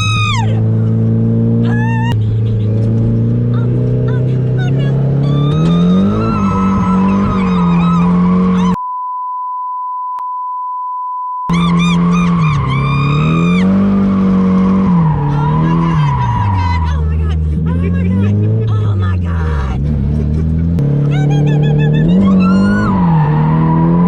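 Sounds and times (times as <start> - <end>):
car engine revving: 0.0 - 8.8, 11.5 - 24.0
tyres squealing: 4.1 - 8.8, 11.5 - 19.8
censor bleep: 8.7 - 11.6.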